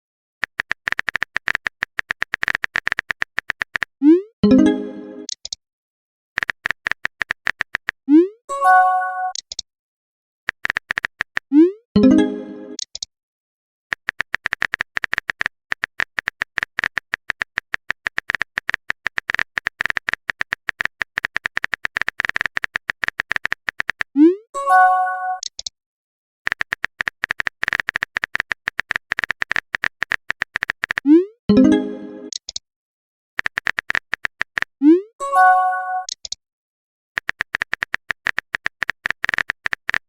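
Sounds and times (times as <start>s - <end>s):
electronic typing clicks: 0.4s - 5.6s, 6.4s - 8.0s, 9.2s - 9.6s, 10.5s - 13.1s, 13.9s - 24.2s, 25.3s - 25.7s, 26.5s - 32.6s, 33.4s - 34.8s, 35.4s - 36.4s, 37.2s - 40.0s
message sent chime: 4.4s - 5.3s, 8.5s - 9.4s, 12.0s - 12.8s, 24.6s - 25.4s, 31.5s - 32.3s, 35.2s - 36.1s.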